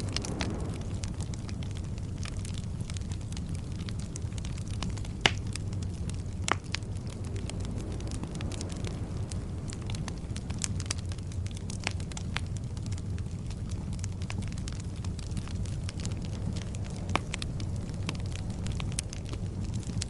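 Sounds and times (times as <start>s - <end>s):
bonfire crackling: 0.0s - 20.0s
sharp fire pops: 0.0s - 20.0s.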